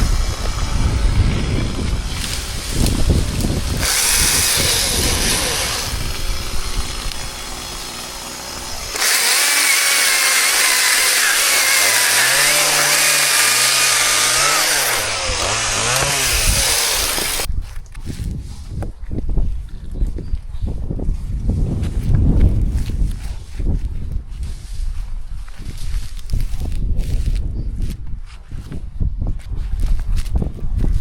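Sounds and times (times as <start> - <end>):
chainsaw running and cutting: 0.0 - 17.5.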